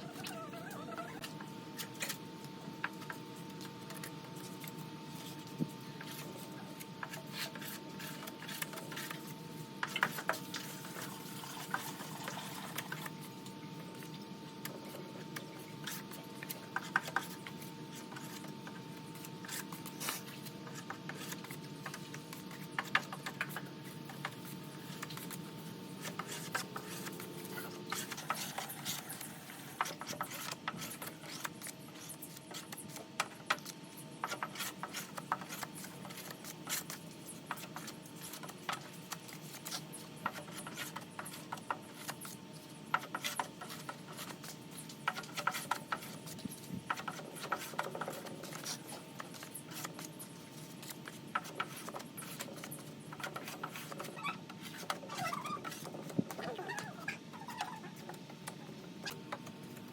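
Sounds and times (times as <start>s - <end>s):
rubbing and scraping: 3.9s - 13.3s.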